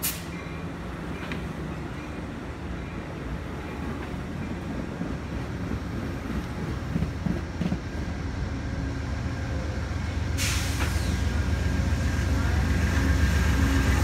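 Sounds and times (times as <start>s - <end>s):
train rumbling past: 0.0s - 14.0s
sudden hiss: 10.4s - 11.4s.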